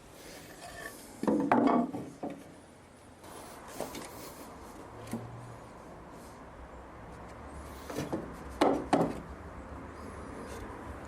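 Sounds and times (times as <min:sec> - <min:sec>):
wood scraping: 0:00.2 - 0:02.5, 0:07.2 - 0:09.3.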